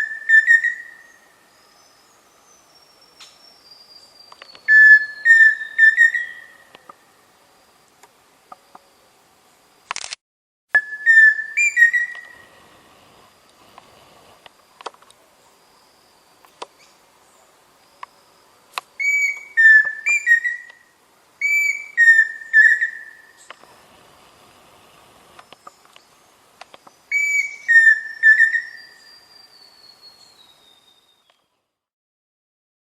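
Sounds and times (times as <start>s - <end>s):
bird whistling song: 0.0s - 6.8s, 10.8s - 12.5s, 19.0s - 23.5s, 26.8s - 31.5s.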